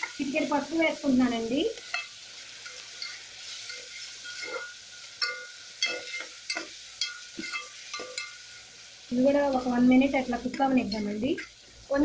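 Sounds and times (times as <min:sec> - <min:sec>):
vegetables sizzling in oil: 0:00.0 - 0:12.0
spoon scraping a metal pot: 0:01.8 - 0:08.6.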